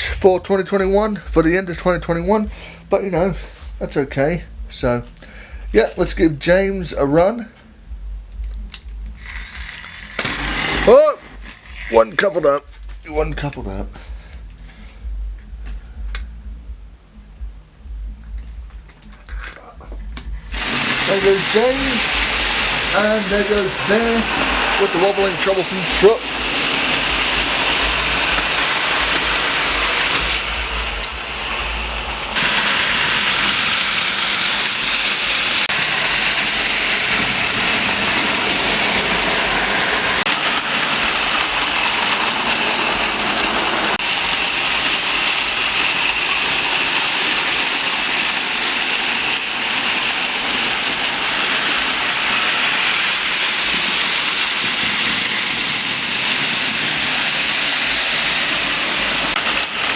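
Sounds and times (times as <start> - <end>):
toy trains whirring and rattling: 8.7 - 12.7, 20.6 - 59.9.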